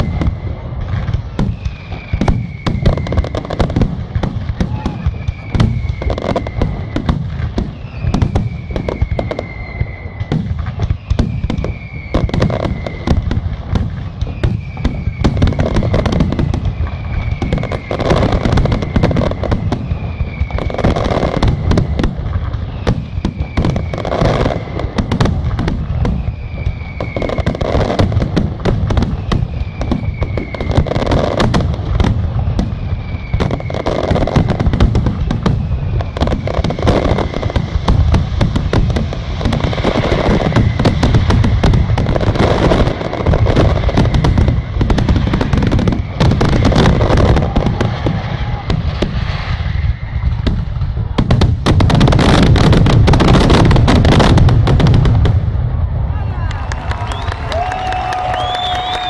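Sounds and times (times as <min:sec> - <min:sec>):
fireworks bangs and crackling: 0:00.0 - 0:59.0
high falling whistle: 0:01.3 - 0:03.7, 0:04.6 - 0:07.1, 0:07.7 - 0:13.3, 0:14.2 - 0:22.0, 0:22.6 - 0:24.9, 0:25.9 - 0:27.9, 0:29.1 - 0:31.4, 0:32.7 - 0:34.7, 0:42.4 - 0:50.5, 0:56.1 - 0:59.0.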